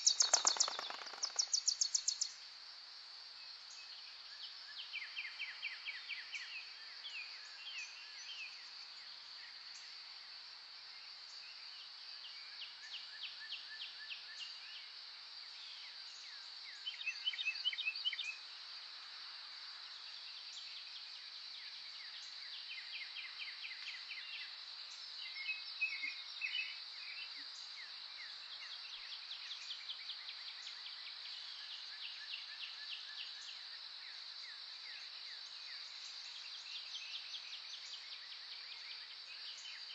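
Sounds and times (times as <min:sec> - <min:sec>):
songbirds trilling: 0:00.0 - 0:02.3
high insect drone: 0:00.0 - 0:13.2.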